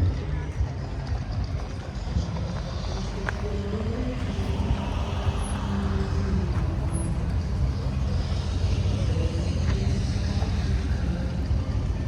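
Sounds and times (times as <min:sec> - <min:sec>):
car engine running: 0:01.5 - 0:12.0.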